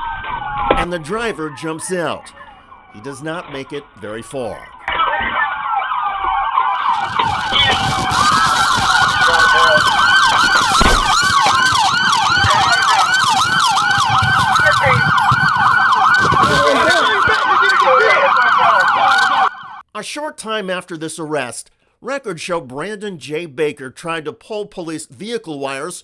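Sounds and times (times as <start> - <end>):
police siren wail: 0.0 - 19.8
police siren yelp: 0.0 - 19.8
brief thump: 10.8 - 11.3.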